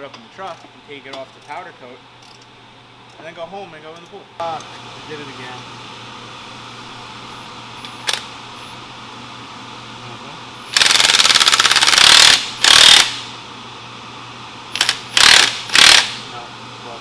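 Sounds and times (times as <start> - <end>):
air impact wrench rattling: 10.7 - 13.3, 14.7 - 16.3.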